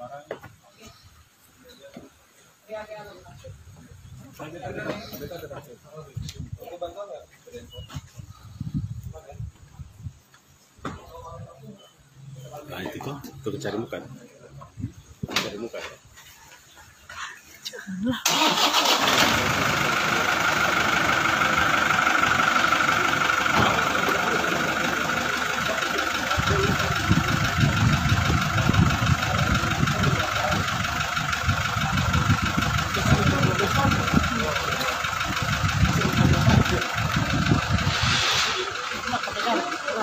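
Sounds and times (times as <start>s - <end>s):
pickup engine idling: 18.2s - 40.0s.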